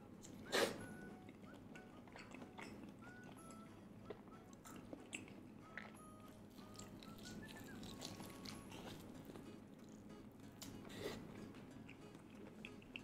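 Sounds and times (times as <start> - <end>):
person chewing crunchy food: 0.2 - 13.0
faint whistle-like tones: 7.0 - 8.2.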